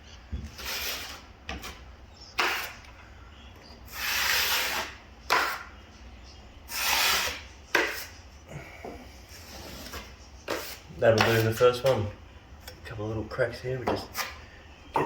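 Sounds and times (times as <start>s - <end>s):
drywall knife scraping compound: 0.4s - 2.9s, 3.9s - 5.7s, 6.7s - 8.2s, 9.3s - 12.0s, 14.0s - 14.4s.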